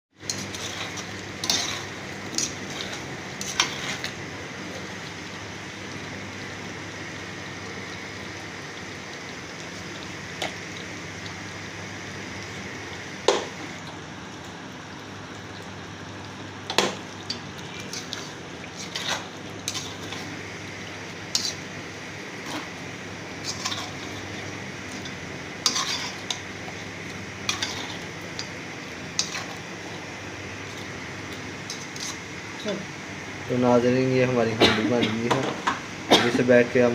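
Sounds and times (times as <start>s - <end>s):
metal utensil scraping cooking pot: 0.3s - 4.1s, 17.8s - 20.3s, 21.3s - 21.7s, 23.4s - 24.4s, 25.0s - 26.4s, 27.5s - 28.1s.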